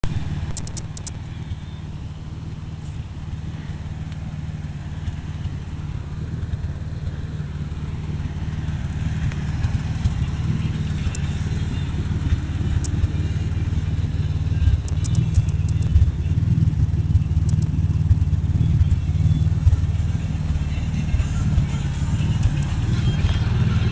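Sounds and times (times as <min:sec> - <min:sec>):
truck engine idling: 0:00.0 - 0:23.9.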